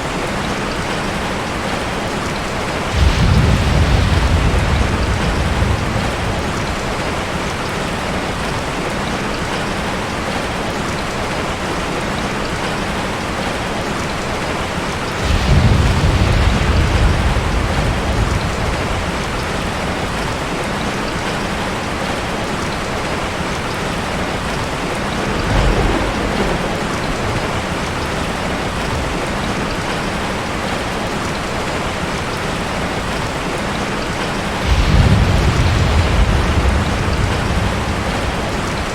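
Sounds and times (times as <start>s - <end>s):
steady rain: 0.0s - 38.9s
thunder rolling: 2.4s - 8.6s, 14.6s - 21.4s, 23.6s - 31.6s, 34.5s - 38.9s.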